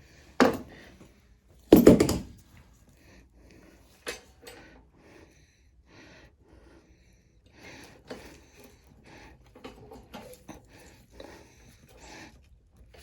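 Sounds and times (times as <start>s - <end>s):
tools knocking on work surface: 1.7s - 2.4s.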